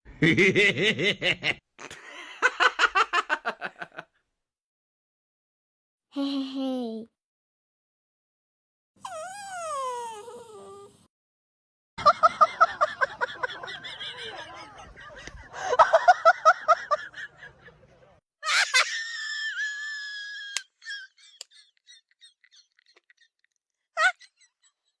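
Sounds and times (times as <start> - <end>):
dog whining: 9.0 - 11.0.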